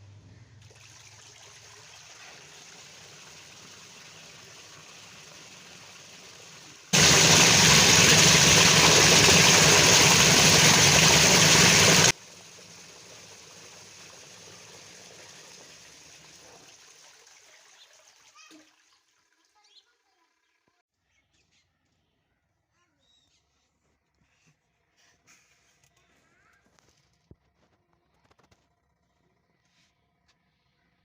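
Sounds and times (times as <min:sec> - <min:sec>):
water running into washing machine: 0:00.6 - 0:19.6
loud rush of water: 0:07.0 - 0:12.2.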